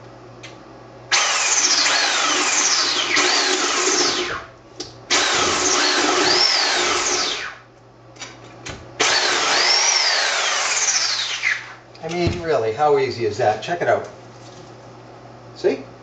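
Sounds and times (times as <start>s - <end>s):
electric cutting tool motor: 1.1s - 4.4s, 5.1s - 7.6s, 9.0s - 11.8s.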